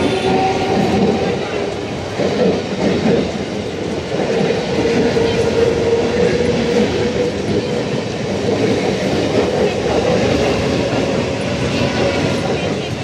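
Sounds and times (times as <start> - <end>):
electric train rumbling past: 0.0 - 13.0.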